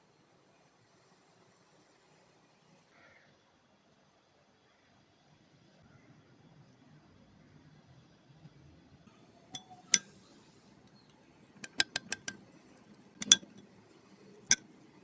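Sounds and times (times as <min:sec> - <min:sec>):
kitchenware clinking: 0:11.6 - 0:12.4, 0:13.2 - 0:13.6.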